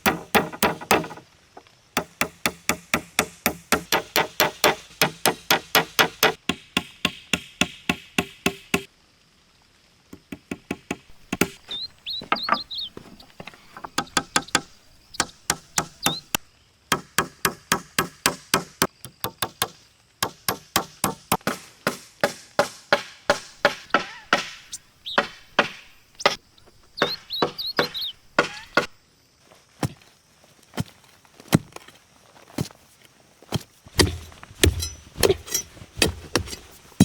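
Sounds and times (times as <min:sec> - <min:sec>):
sharp chopping knocks: 0:00.0 - 0:01.2, 0:10.7 - 0:28.9, 0:33.9 - 0:36.6
high chirps: 0:11.1 - 0:16.4, 0:23.6 - 0:28.9.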